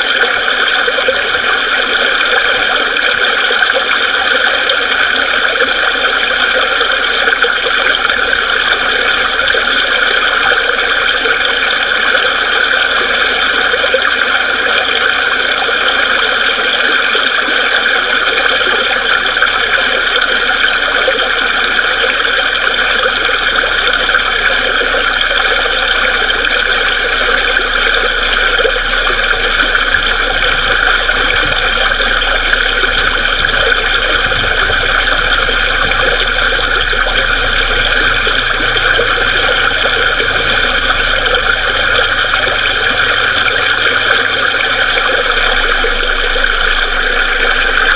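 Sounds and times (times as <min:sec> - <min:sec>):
creek water babbling over rocks: 0:17.7 - 0:47.9.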